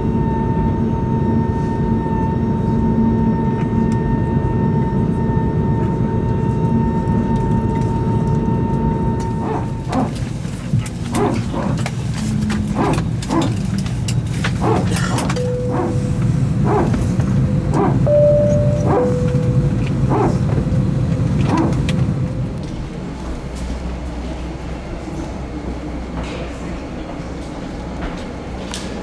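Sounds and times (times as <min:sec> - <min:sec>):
cabin hum: 0:07.5 - 0:24.1
steady whine: 0:08.7 - 0:23.4
hydraulic pump barking in short pulses: 0:14.6 - 0:20.8.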